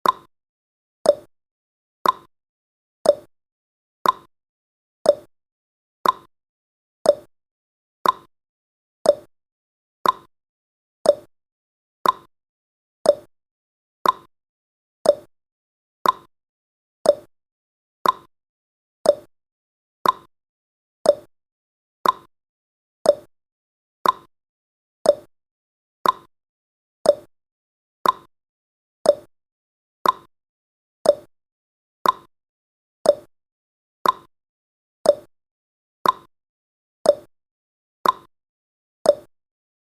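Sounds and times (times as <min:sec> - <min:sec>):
timer ticking: 0:00.0 - 0:00.3, 0:01.1 - 0:01.3, 0:02.0 - 0:02.3, 0:03.0 - 0:03.3, 0:04.0 - 0:04.3, 0:05.1 - 0:05.3, 0:06.0 - 0:06.3, 0:07.0 - 0:07.3, 0:08.0 - 0:08.3, 0:09.0 - 0:09.3, 0:10.0 - 0:10.3, 0:11.0 - 0:11.3, 0:12.0 - 0:12.3, 0:13.0 - 0:13.3, 0:14.0 - 0:14.3, 0:15.0 - 0:15.3, 0:16.0 - 0:16.3, 0:17.0 - 0:17.3, 0:18.0 - 0:18.3, 0:19.0 - 0:19.3, 0:20.0 - 0:20.3, 0:21.0 - 0:21.3, 0:22.0 - 0:22.3, 0:23.0 - 0:23.3, 0:24.0 - 0:24.3, 0:25.0 - 0:25.3, 0:26.0 - 0:26.3, 0:27.0 - 0:27.3, 0:28.0 - 0:28.3, 0:29.0 - 0:29.3, 0:30.0 - 0:30.3, 0:31.0 - 0:31.3, 0:32.0 - 0:32.3, 0:33.0 - 0:33.3, 0:34.0 - 0:34.3, 0:35.0 - 0:35.3, 0:36.0 - 0:36.3, 0:37.1 - 0:37.3, 0:38.0 - 0:38.3, 0:39.1 - 0:39.3.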